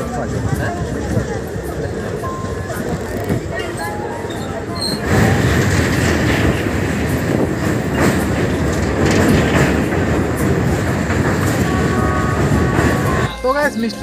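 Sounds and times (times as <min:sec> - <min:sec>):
train rumbling across steel bridge: 0:00.0 - 0:14.0
metallic clanks from wheels: 0:01.7 - 0:11.8.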